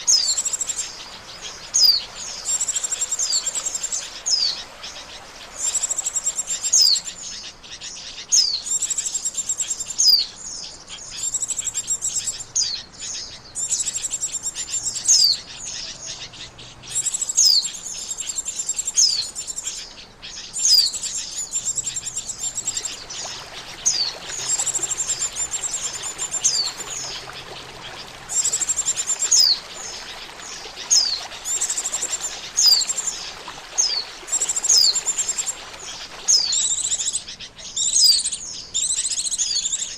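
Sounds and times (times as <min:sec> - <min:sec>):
bird twittering chatter: 0:11.0 - 0:39.9.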